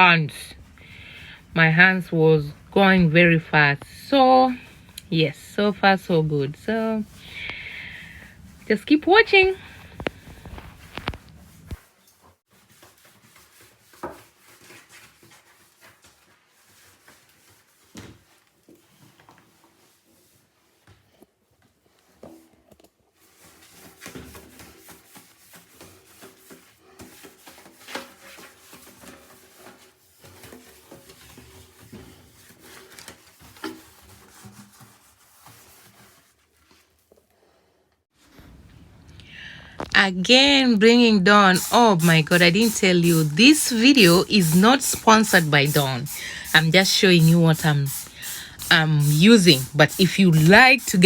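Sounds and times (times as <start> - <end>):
scrubbing by hand: 0.0 - 11.9, 23.2 - 37.0, 39.9 - 51.0.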